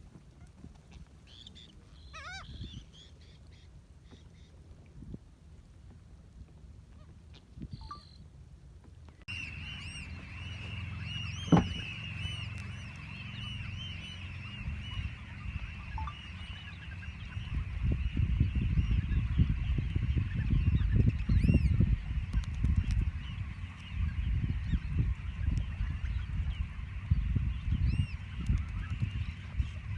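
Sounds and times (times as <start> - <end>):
flock of geese honking: 9.3 - 29.9.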